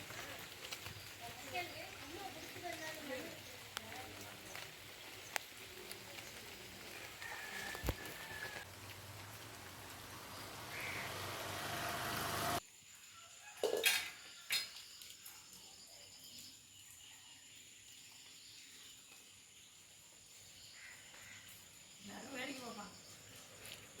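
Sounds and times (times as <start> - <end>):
rain hissing: 0.0 - 12.6.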